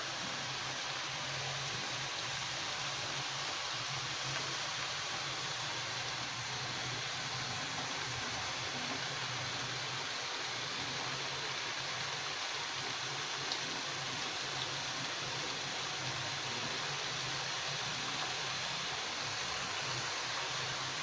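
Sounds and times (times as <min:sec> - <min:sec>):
dough deep-frying in hot oil: 0:00.0 - 0:21.0
small pops of frying oil: 0:13.5 - 0:13.7.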